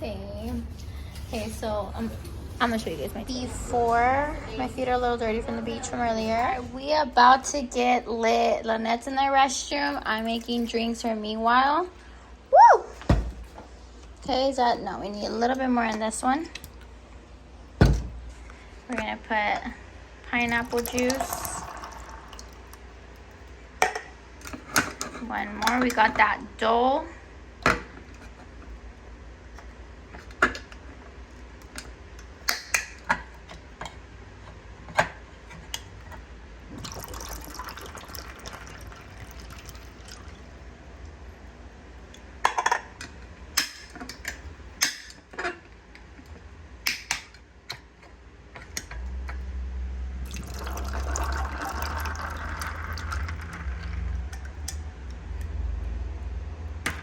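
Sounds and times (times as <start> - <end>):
juice pouring into glasses: 20.4 - 23.5, 36.7 - 40.7, 50.2 - 54.7.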